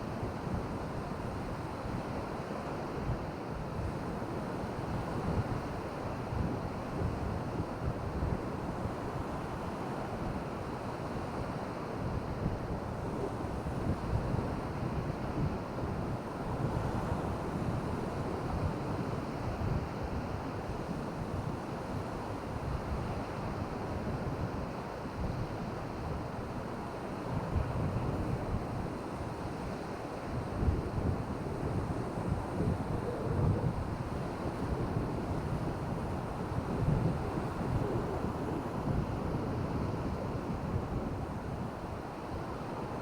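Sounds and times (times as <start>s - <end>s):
wind buffeting microphone: 30.3s - 43.0s.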